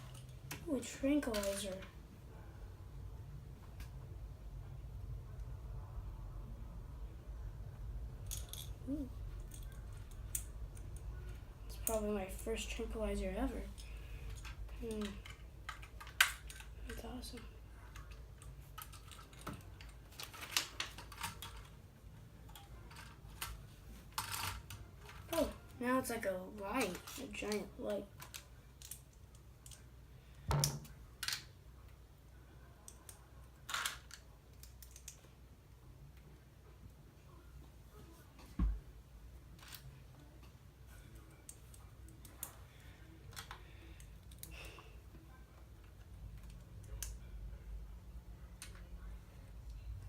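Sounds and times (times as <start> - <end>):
plastic pieces clicking: 28.2 - 29.8, 33.7 - 35.3.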